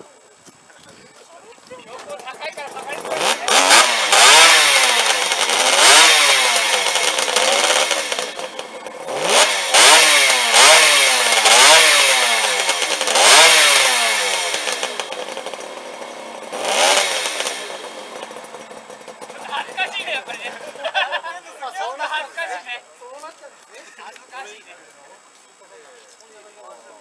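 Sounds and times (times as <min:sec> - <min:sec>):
motorcycle engine revving: 0:02.0 - 0:21.0.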